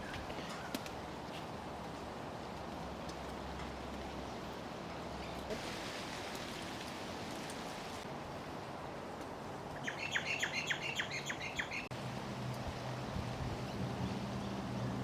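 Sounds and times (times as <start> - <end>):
faint outdoor hiss: 0.0 - 15.0
bird chirping rapidly: 9.8 - 11.9.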